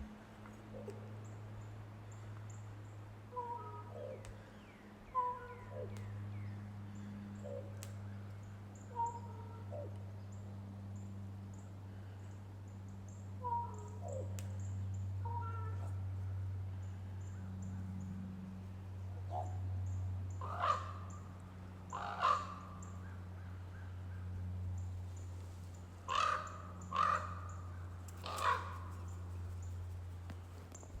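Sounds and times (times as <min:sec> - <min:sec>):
raven calling: 0:03.3 - 0:04.5, 0:05.1 - 0:06.0, 0:08.8 - 0:10.0, 0:13.4 - 0:16.2, 0:20.3 - 0:24.3, 0:26.0 - 0:29.7.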